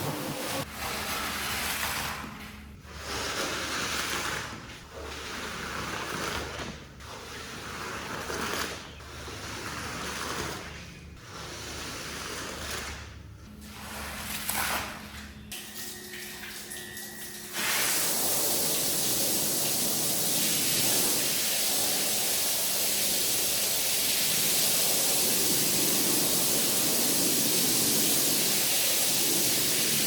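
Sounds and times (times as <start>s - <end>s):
water spraying onto a rug: 17.6s - 30.0s.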